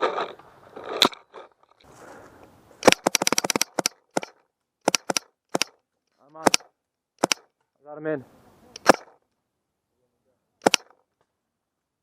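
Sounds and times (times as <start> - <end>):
paintball markers firing: 2.8 - 5.8, 6.4 - 7.5, 8.8 - 9.1, 10.6 - 10.9.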